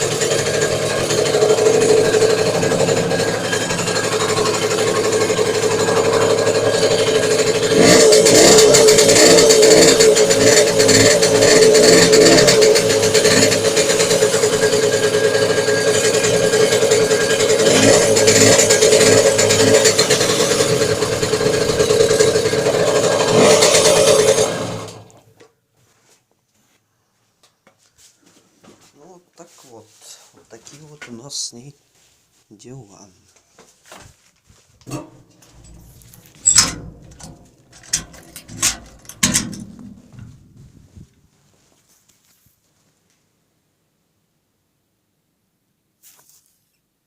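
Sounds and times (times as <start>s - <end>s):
moped engine knocking and revving: 0.0s - 25.1s, 34.9s - 41.1s.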